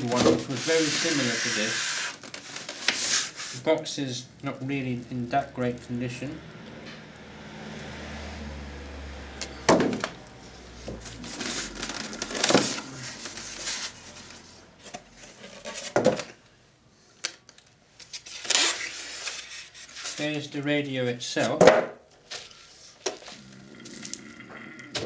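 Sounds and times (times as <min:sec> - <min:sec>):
cardboard rustling and scraping: 0:00.0 - 0:06.3, 0:09.5 - 0:16.4, 0:18.0 - 0:20.5, 0:22.2 - 0:24.1.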